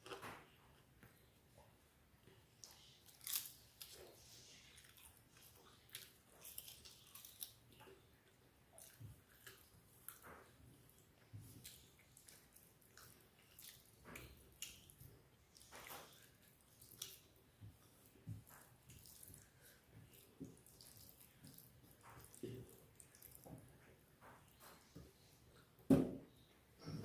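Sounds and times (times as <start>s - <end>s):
chewing and lip smacks: 2.6s - 23.6s.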